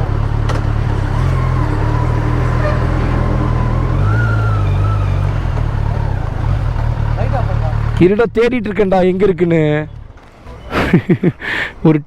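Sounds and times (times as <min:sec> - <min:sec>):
motorcycle engine running at low revs: 0:00.0 - 0:08.0.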